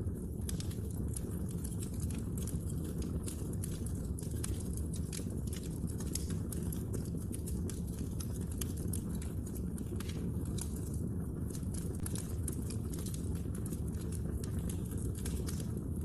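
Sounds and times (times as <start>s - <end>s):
low rumble of burning: 0.0s - 16.0s
wood fire crackling: 0.0s - 16.0s.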